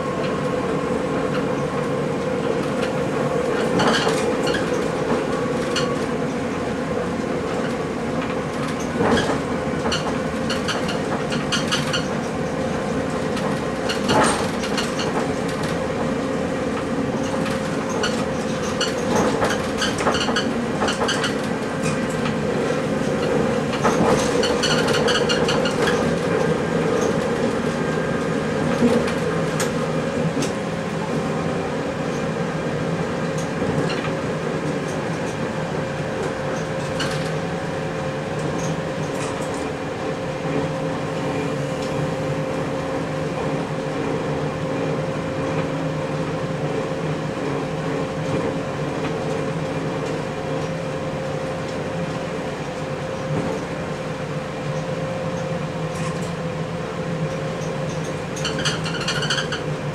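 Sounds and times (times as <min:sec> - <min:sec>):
train drive hum: 0:00.0 - 0:59.9
wheel and rail noise: 0:00.0 - 0:59.9
wheels clicking over rail joints: 0:07.5 - 0:16.1, 0:16.8 - 0:22.4, 0:23.0 - 0:30.6, 0:57.2 - 0:59.9.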